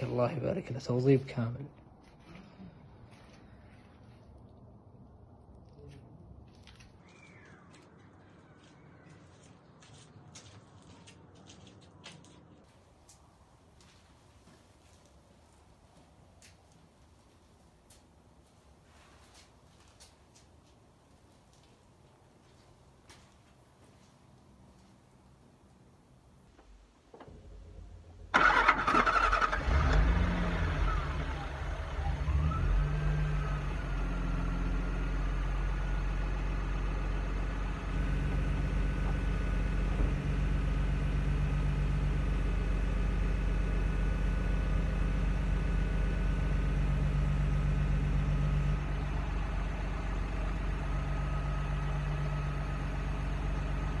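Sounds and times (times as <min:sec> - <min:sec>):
car engine starting and idling: 0:26.6 - 0:54.0.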